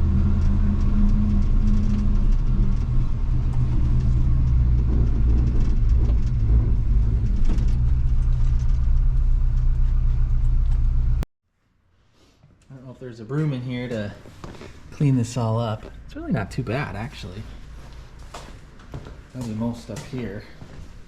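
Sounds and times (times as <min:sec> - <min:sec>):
pickup engine rumbling: 0:00.0 - 0:11.2.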